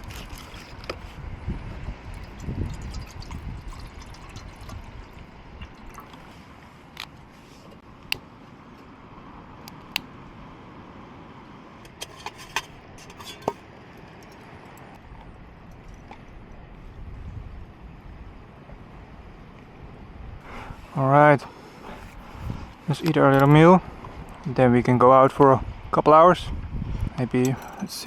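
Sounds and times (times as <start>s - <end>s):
liquid pouring and sloshing: 0.0s - 1.2s, 2.1s - 6.6s
wind on microphone: 0.0s - 6.4s, 15.0s - 20.9s, 21.9s - 24.5s, 25.5s - 27.6s
utensils clinking on pot: 12.0s - 14.4s.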